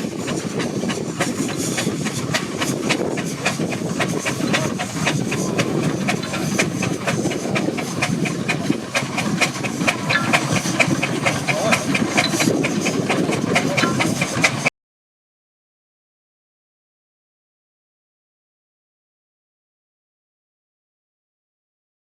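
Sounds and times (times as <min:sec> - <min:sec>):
steam engine hissing and clicking: 0:00.0 - 0:14.7.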